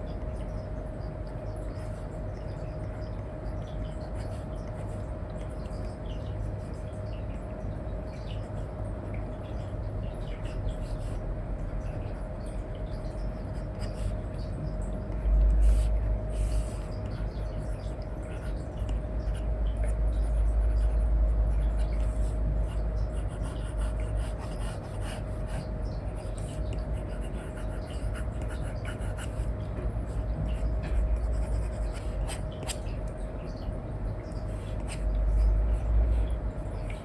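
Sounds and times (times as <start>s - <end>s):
low hum: 0.0s - 37.0s.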